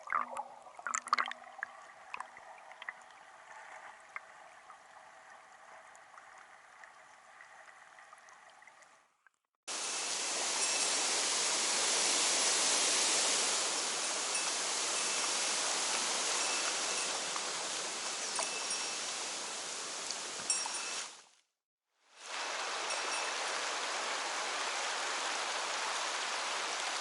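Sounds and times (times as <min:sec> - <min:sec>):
stream water rushing: 0:09.7 - 0:21.2, 0:22.2 - 0:27.0.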